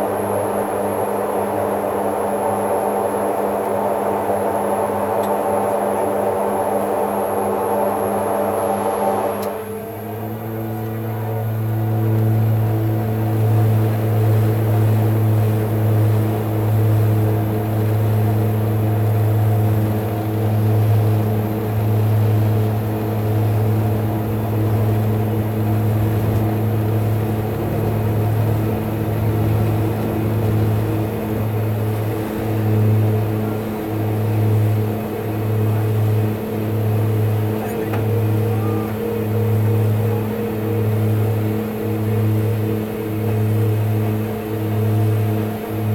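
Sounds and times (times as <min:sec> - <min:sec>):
propeller engine drone: 0:00.0 - 0:45.9.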